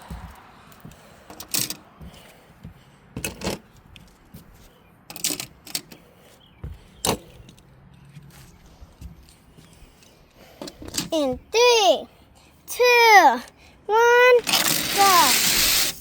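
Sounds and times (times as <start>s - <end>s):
toy trucks clicking and clattering: 1.2s - 1.9s, 5.1s - 6.1s, 9.8s - 11.4s, 12.7s - 16.0s.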